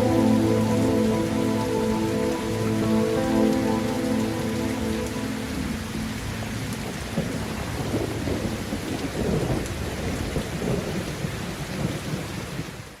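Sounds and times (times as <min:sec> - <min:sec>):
steady rain falling: 0:00.0 - 0:13.0
rumble of thunder: 0:05.0 - 0:12.7.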